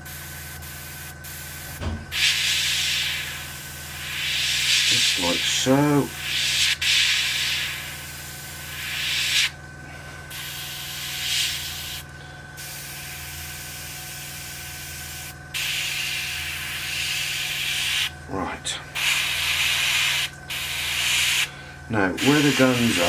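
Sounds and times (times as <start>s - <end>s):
airbrush hissing: 0.0s - 9.6s, 10.3s - 18.1s, 18.9s - 23.0s.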